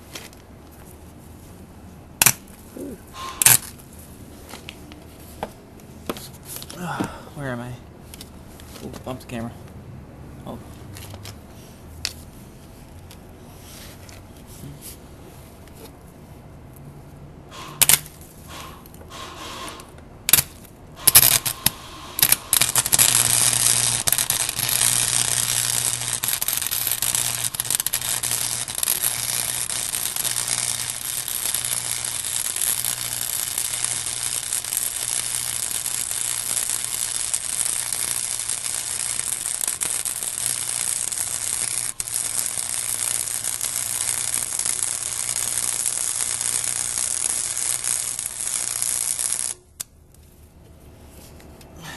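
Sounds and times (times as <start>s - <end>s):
welder arc crackling and sizzling: 3.2s - 3.8s, 21.0s - 49.9s.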